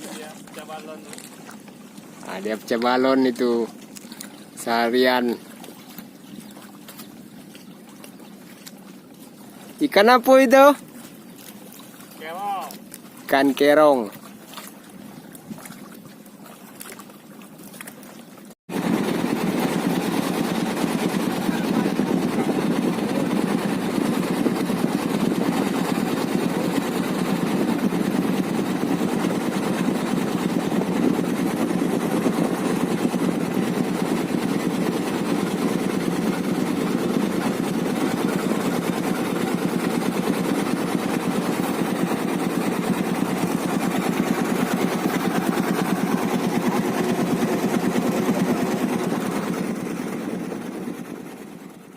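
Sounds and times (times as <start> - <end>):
boat engine running: 0.0 - 51.9.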